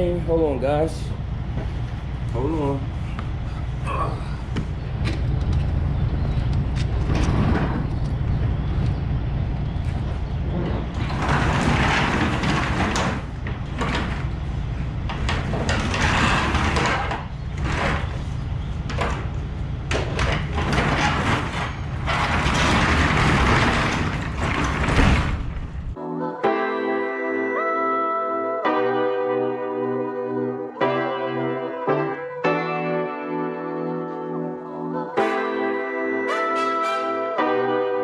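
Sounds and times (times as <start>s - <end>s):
knocks and clatter: 4.5s - 26.0s
music: 26.0s - 38.0s.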